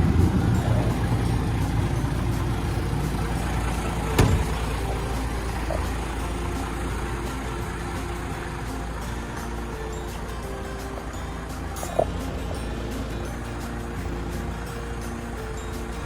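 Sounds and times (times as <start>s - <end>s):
truck diesel engine idling: 0.0s - 16.0s.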